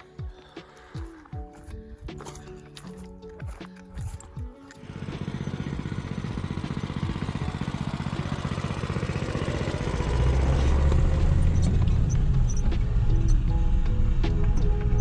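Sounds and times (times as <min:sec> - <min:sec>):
small engine running: 0:03.0 - 0:15.0.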